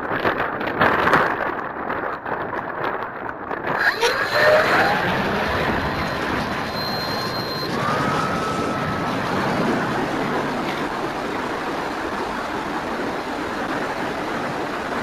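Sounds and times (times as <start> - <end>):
wind buffeting microphone: 0.0 - 15.0
electric motor whine: 3.8 - 11.7.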